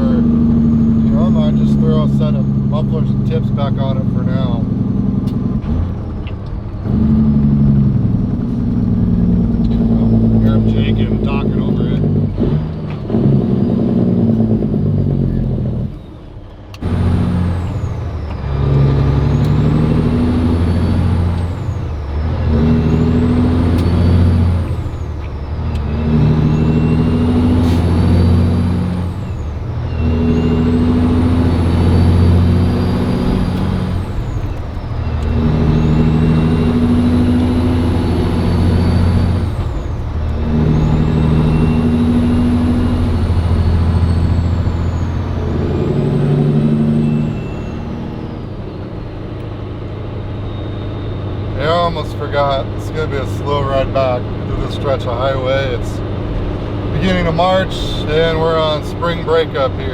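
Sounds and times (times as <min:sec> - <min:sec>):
diesel truck engine shifting gears: 0:00.0 - 0:59.9
high turbo whistle: 0:16.8 - 0:55.0.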